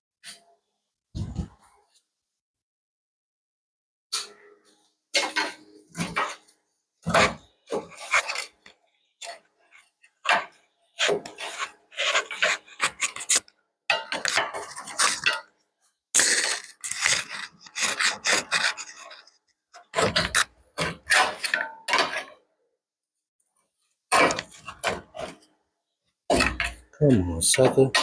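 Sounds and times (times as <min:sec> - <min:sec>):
hand tool rasping on metal: 0:16.2 - 0:19.4.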